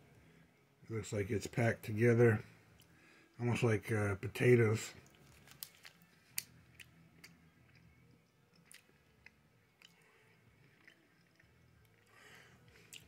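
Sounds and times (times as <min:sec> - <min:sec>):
faint chewing mouth clicks: 0:06.4 - 0:13.0.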